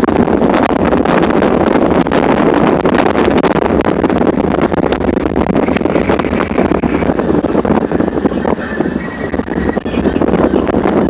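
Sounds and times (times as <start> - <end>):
road and vehicle noise: 0.0 - 11.0
wind buffeting microphone: 0.0 - 11.0.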